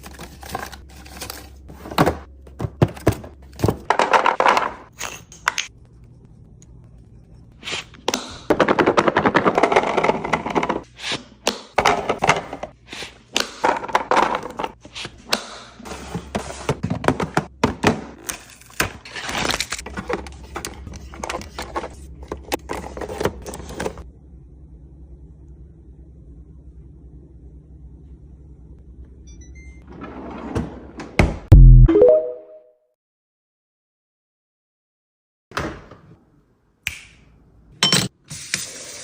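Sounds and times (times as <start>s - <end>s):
food packages being handled: 0.0s - 4.5s.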